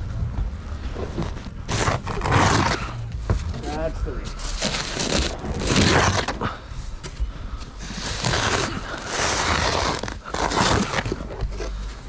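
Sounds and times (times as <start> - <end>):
shovel scraping snow: 1.7 - 3.0, 3.6 - 6.5, 7.8 - 11.4.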